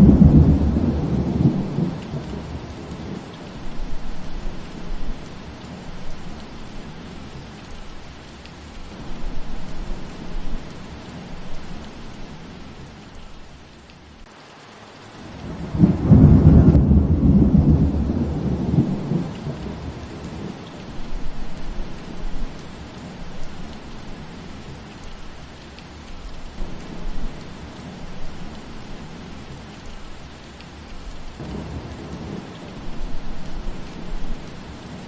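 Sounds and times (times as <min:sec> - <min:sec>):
thunder rumbling: 0:00.0 - 0:07.5, 0:15.2 - 0:24.8, 0:31.2 - 0:35.0
rain falling on foliage: 0:00.0 - 0:35.0.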